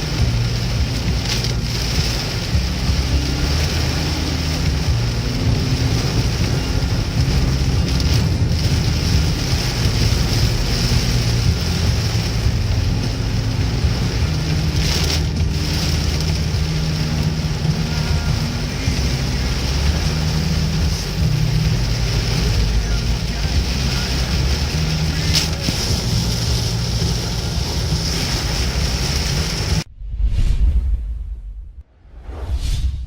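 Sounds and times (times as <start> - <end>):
heavy rain falling: 0.0 - 29.9
low hum: 29.8 - 33.0.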